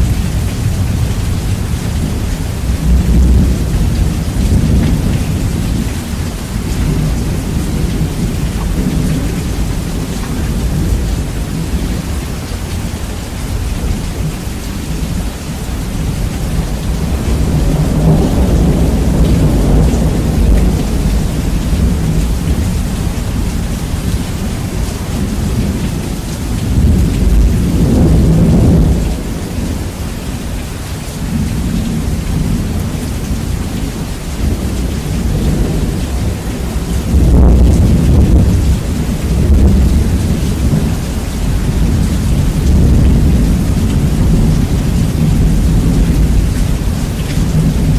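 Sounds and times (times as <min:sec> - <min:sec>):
heavy rain: 0:00.0 - 0:47.9
thunder rumbling: 0:00.0 - 0:47.9.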